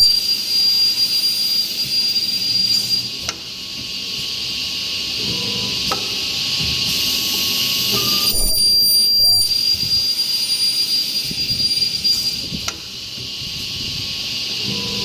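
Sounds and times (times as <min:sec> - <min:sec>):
high-pitched whine: 0:00.0 - 0:03.2, 0:06.6 - 0:15.0
hissing machine noise: 0:00.0 - 0:15.0.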